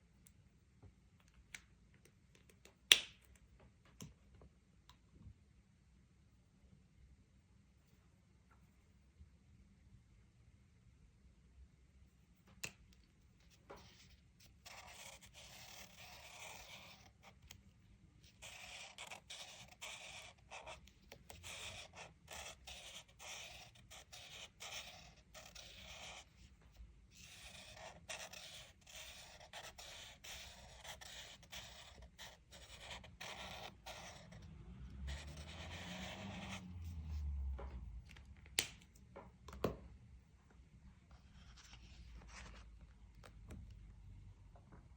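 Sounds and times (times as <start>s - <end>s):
crayon scratching on paper: 13.8s - 17.6s, 18.2s - 37.2s.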